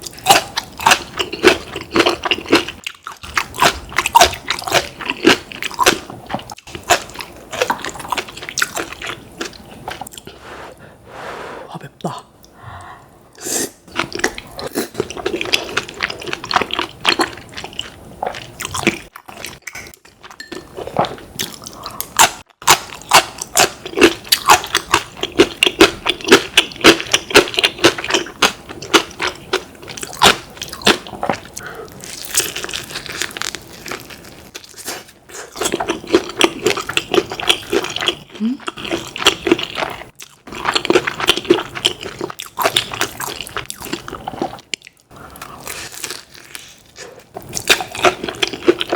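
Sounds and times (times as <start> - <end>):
fried chicken crunching and chewing: 0.0 - 10.1, 21.0 - 48.9.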